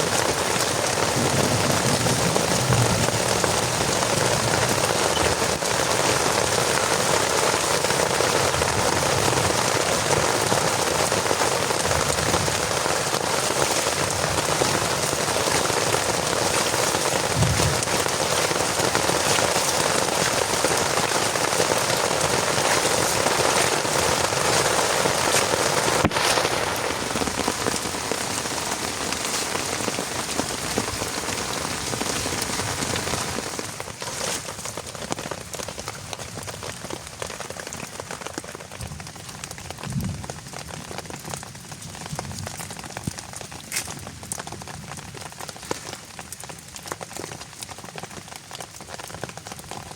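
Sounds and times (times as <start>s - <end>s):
heavy rain falling: 0.0s - 49.9s
low thud: 17.4s - 17.8s.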